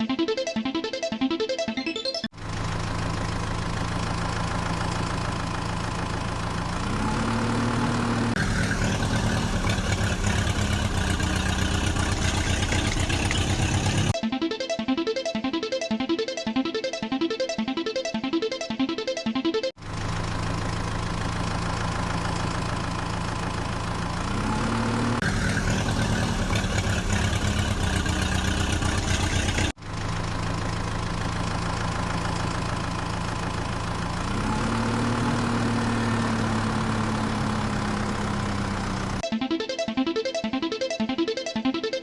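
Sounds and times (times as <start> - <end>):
heavy vehicle engine idling and revving: 2.3 - 14.2, 19.8 - 39.2.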